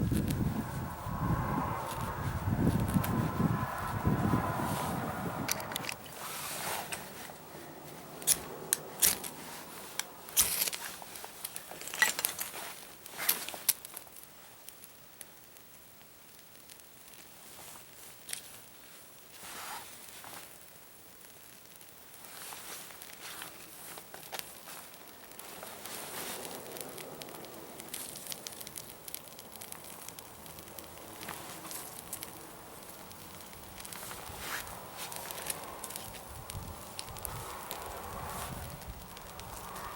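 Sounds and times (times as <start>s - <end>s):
dry kindling snapping: 0.0s - 15.7s, 21.4s - 39.9s
campfire crackling and popping: 0.0s - 39.9s.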